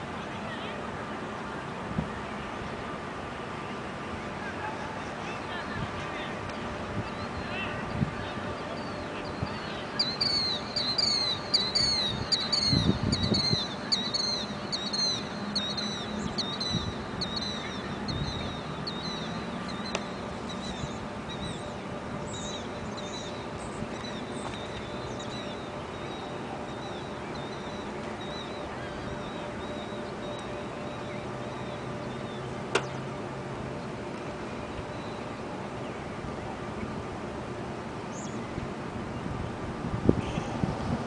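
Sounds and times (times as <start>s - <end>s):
low steady hum: 0.0s - 41.0s
bird chirping: 8.6s - 33.1s.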